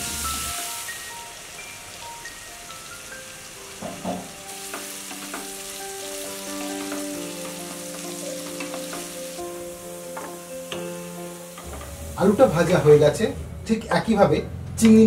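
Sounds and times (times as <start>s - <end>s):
potatoes sizzling in oil: 0.0s - 13.0s
wooden spatula knocking pan: 3.8s - 5.5s.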